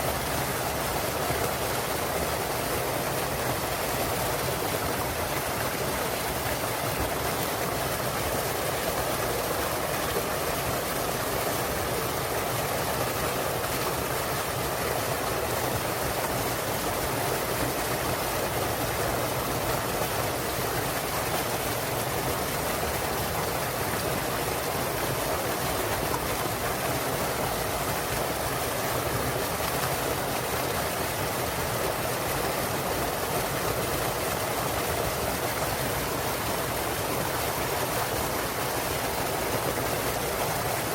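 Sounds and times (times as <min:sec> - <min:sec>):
small waterfall splashing: 0:00.0 - 0:40.9.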